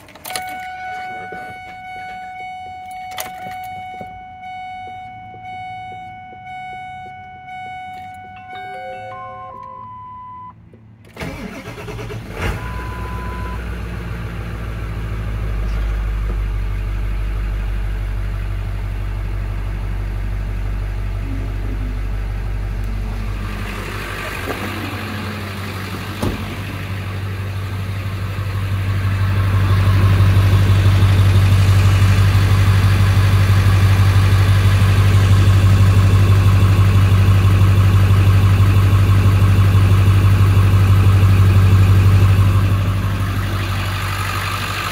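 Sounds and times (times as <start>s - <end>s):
diesel engine cranking: 0.0s - 44.9s
diesel engine idling: 0.0s - 44.9s
short chime tone: 8.2s - 10.3s.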